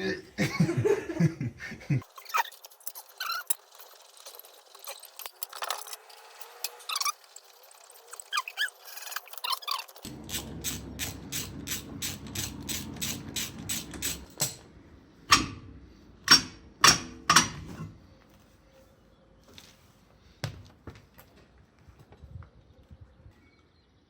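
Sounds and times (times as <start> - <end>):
ratchet pawl clicking: 2.2 - 14.6.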